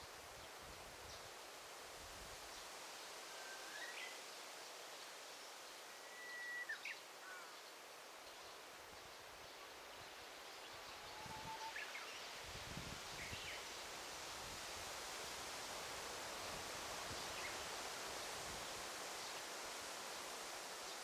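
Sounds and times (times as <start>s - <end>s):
leaves and air hissing: 0.0s - 21.0s
thin bird whistles: 6.0s - 7.4s, 11.3s - 11.9s.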